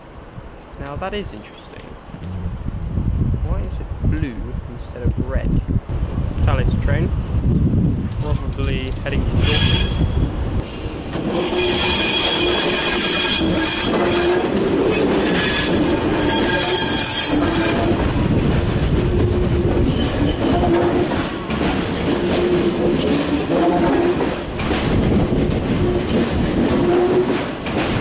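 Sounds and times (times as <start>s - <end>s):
train carriages rumbling: 1.2s - 28.0s
clickety-clack of rails: 8.0s - 28.0s
train wheels squealing: 9.4s - 17.9s.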